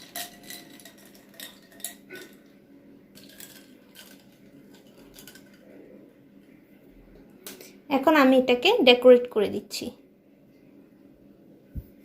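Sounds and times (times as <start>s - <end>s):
ice cubes clinking in a jar: 0.0s - 2.4s, 3.2s - 5.6s.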